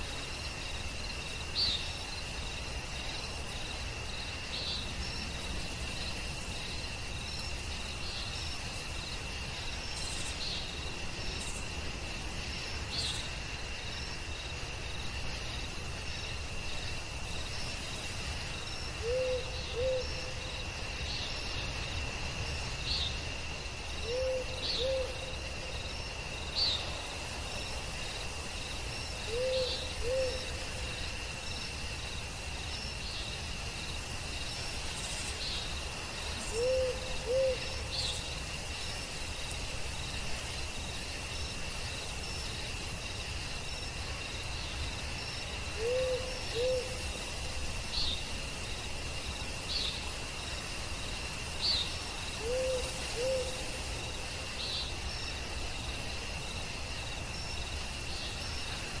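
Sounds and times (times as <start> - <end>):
crickets trilling: 0.0 - 59.0
owl hooting: 19.0 - 20.0, 24.0 - 25.3, 29.3 - 30.5, 36.5 - 37.8, 45.8 - 47.0, 52.4 - 53.6.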